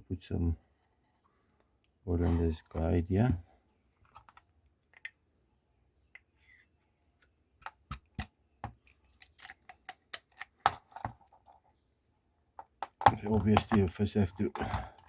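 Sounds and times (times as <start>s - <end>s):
metal parts clicking and knocking: 7.6s - 11.6s, 12.6s - 15.0s.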